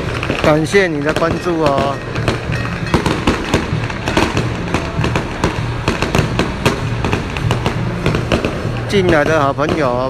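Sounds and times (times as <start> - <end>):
firecrackers cracking: 0.0 - 10.0.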